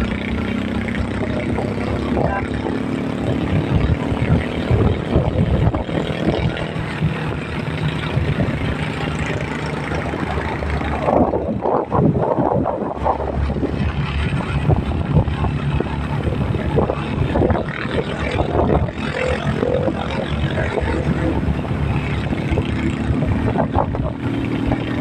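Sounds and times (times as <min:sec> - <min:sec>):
road noise: 0:00.0 - 0:25.0
vehicle engine running: 0:00.0 - 0:25.0.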